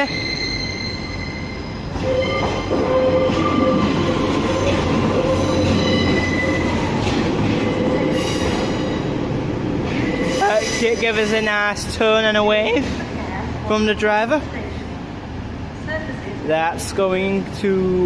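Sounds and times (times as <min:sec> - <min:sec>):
train wheels squealing: 0:00.0 - 0:09.1, 0:10.0 - 0:11.4
train rumble: 0:00.0 - 0:18.0.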